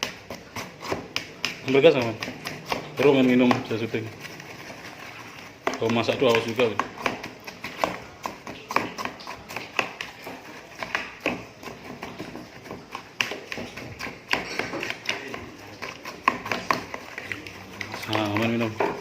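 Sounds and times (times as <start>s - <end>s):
glasses and kitchenware clinking: 14.3s - 15.3s.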